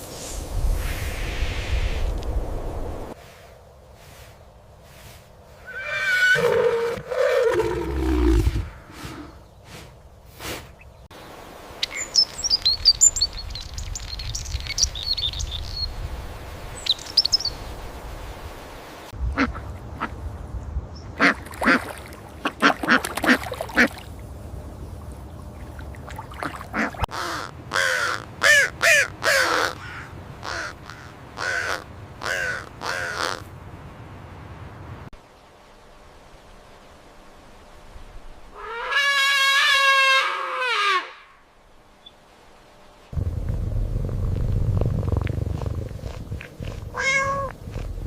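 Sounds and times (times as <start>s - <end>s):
ducks quacking: 26.4s - 33.4s
low steady rumble: 41.5s - 48.0s.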